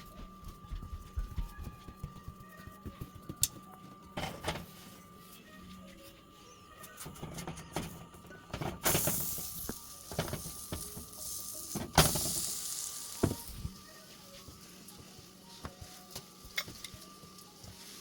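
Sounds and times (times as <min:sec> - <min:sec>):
flatbread sizzling on griddle: 0:09.0 - 0:13.8.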